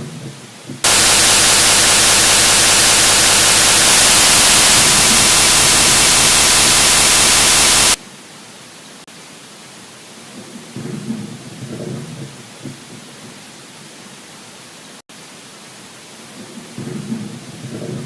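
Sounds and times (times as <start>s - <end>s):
loud static hiss: 0.8s - 10.2s.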